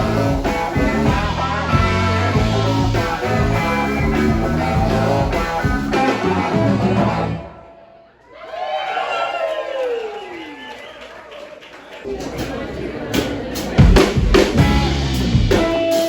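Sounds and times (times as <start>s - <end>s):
live rock blues band: 0.0s - 7.5s, 13.6s - 16.0s
shout with falling pitch: 8.2s - 11.0s.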